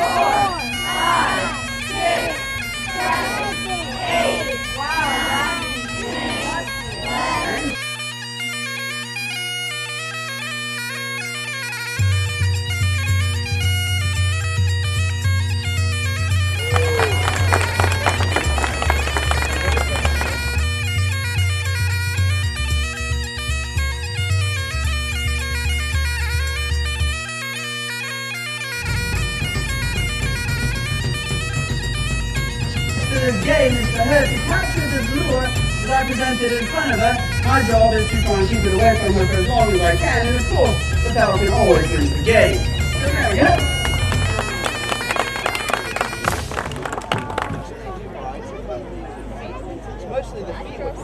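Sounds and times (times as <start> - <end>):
bagpipe music: 0.0 - 47.1
deeper bass line: 28.8 - 46.5.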